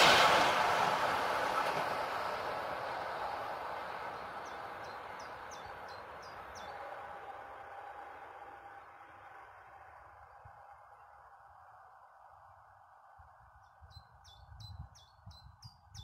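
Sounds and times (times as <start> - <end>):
train wheels on rails: 0.0 - 11.9
bird chirping: 3.9 - 7.0, 13.6 - 16.0.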